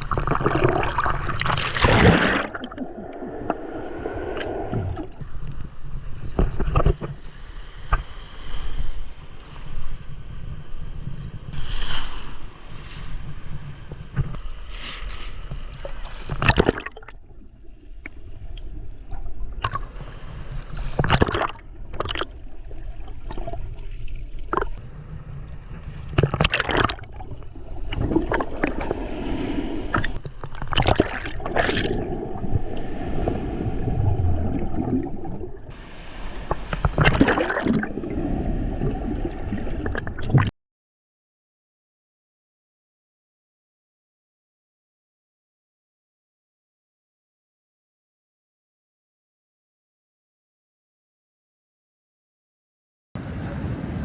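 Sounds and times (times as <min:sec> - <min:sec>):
water splashes: 0:00.0 - 0:09.8, 0:14.6 - 0:25.0, 0:25.6 - 0:40.5
water sloshing and gurgling: 0:00.0 - 0:40.5.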